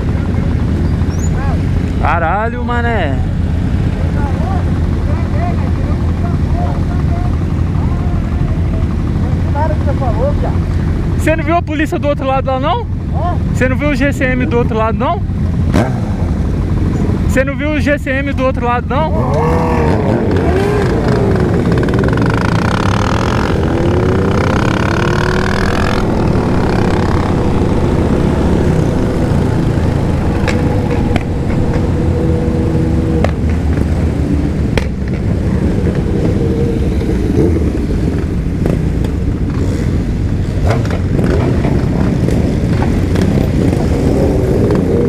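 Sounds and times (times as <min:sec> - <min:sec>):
motorcycle engine running: 0:18.1 - 0:45.0
wind rumble on microphone: 0:19.2 - 0:45.0.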